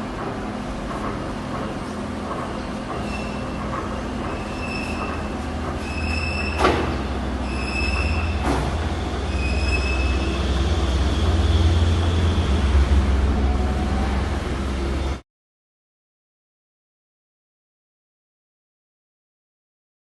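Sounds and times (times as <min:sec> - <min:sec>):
lathe running with low rumble: 0:00.0 - 0:15.2
high-pitched squeal: 0:07.4 - 0:14.3.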